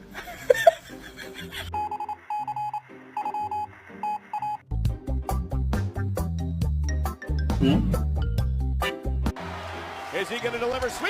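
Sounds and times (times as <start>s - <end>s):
electronic alarm beeping: 1.7s - 4.6s
music with heavy bass: 4.8s - 9.2s.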